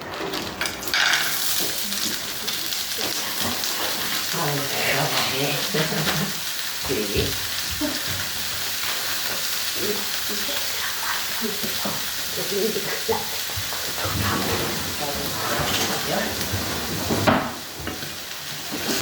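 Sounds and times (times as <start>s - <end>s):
washing machine hissing and crackling: 0.0s - 19.0s.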